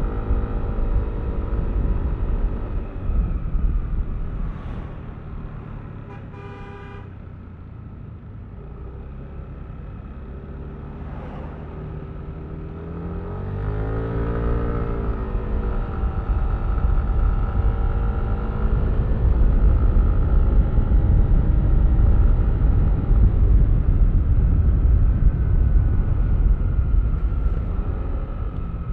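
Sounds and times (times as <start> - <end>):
wind and road rumble: 0.0 - 28.9
vehicle horn toot: 6.0 - 7.2.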